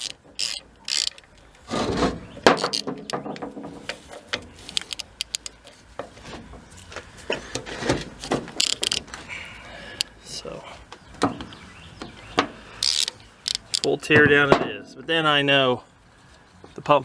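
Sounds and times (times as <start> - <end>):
metal tools and parts clinking: 8.6 - 9.0.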